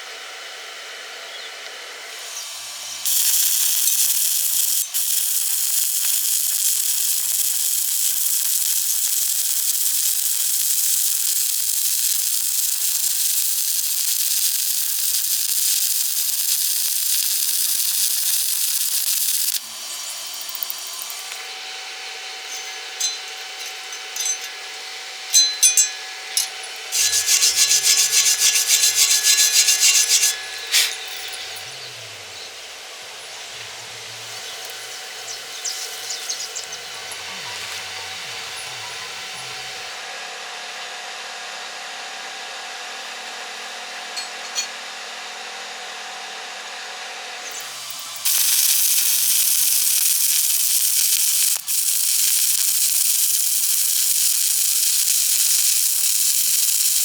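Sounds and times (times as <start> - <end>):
welding arc hissing and crackling: 2.1 - 31.7, 32.7 - 39.9, 47.4 - 57.0
scraping on metal: 25.3 - 31.8.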